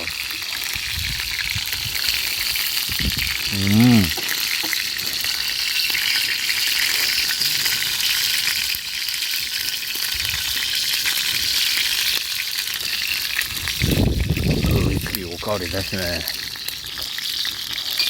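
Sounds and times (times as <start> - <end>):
cartilage sizzling over campfire: 0.0 - 18.0.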